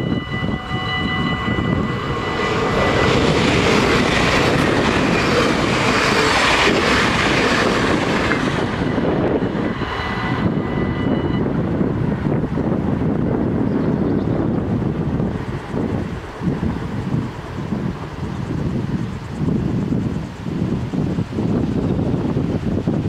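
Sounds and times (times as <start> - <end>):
crossing warning bells ringing: 0.0 - 19.2
train rushing past: 0.0 - 23.0.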